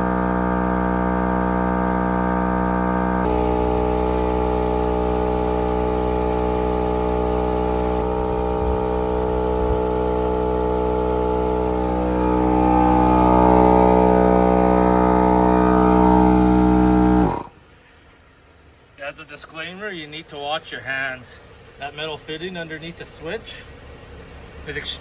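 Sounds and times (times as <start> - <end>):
air compressor humming: 0.0 - 17.6.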